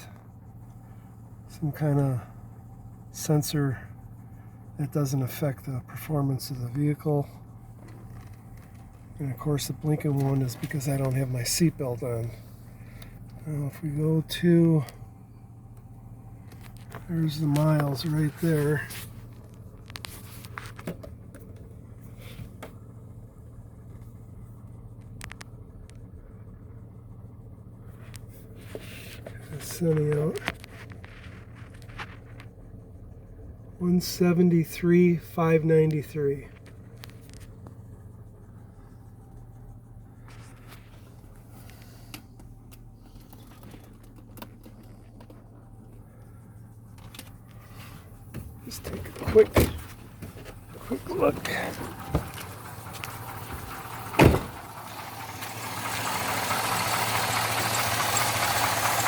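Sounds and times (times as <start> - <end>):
faint low hum: 0.0 - 56.9
truck engine idling: 0.0 - 59.0
light clicks and taps: 40.4 - 46.3.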